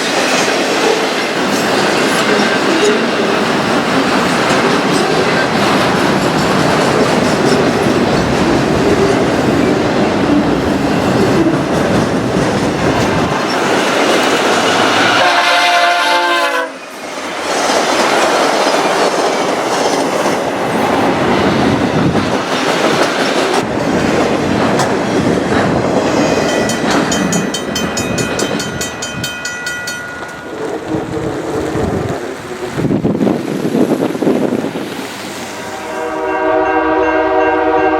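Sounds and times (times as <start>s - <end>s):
train passing with clickety-clack: 0.0s - 37.9s
train horn: 14.7s - 16.9s, 35.5s - 37.9s.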